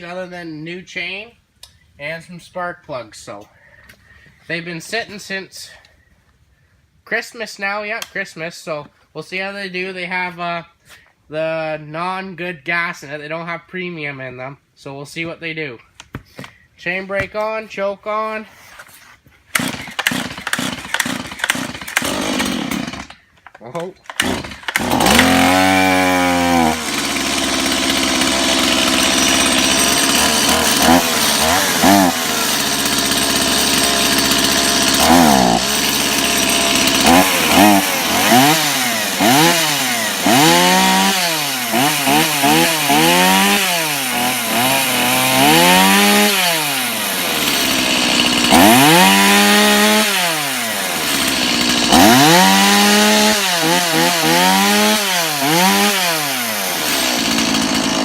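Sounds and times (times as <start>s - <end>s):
chainsaw idling and revving: 19.5s - 23.2s, 24.1s - 58.0s.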